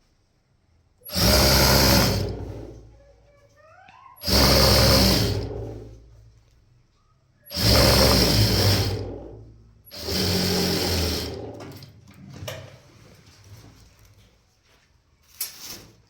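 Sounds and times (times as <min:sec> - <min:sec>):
sewing machine stitching: 0:01.0 - 0:02.9, 0:04.2 - 0:06.2, 0:07.5 - 0:12.0.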